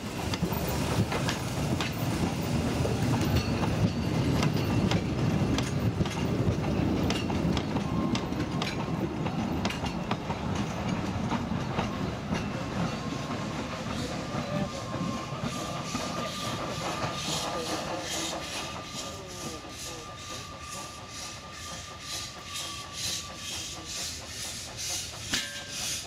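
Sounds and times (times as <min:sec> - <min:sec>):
train rumbling past: 0:00.0 - 0:26.0
wheels clicking over rail joints: 0:00.3 - 0:13.1.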